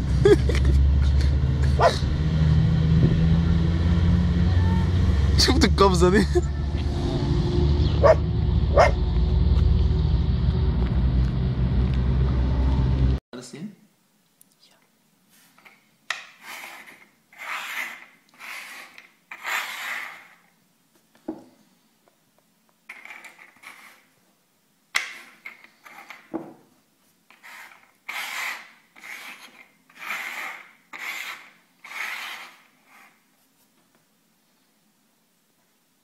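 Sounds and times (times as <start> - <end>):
rasping scratch strokes: 16.3 - 20.5, 22.9 - 24.1, 27.3 - 33.3.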